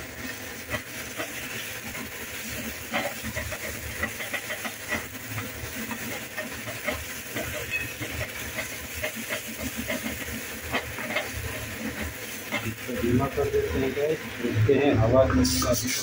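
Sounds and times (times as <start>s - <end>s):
masala sizzling in a metal pan: 0.0s - 16.0s
spatula scraping a pan: 0.6s - 13.0s.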